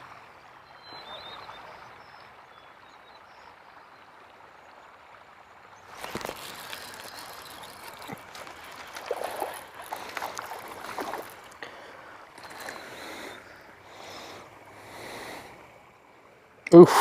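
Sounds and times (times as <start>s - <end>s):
water splashing and gurgling: 3.6s - 16.8s.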